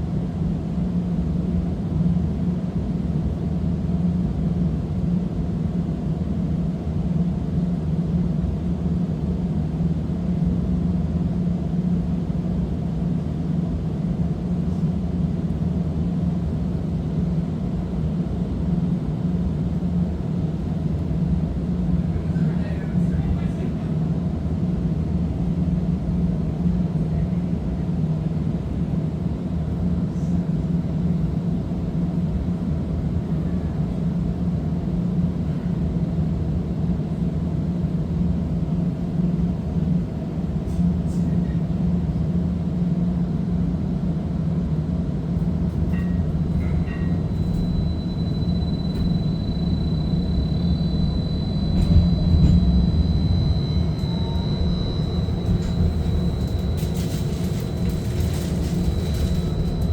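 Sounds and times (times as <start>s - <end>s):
streetcar wheels rumbling on rail: 11.8s - 59.9s
low motor hum: 45.4s - 59.9s
thin high-pitched whine: 45.9s - 59.9s.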